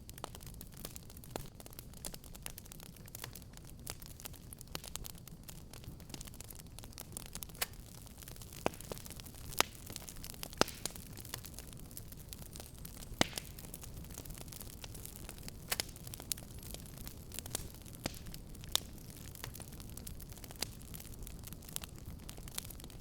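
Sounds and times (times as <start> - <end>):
fire crackling in fireplace: 0.0 - 23.0
sharp fire pops: 6.0 - 23.0.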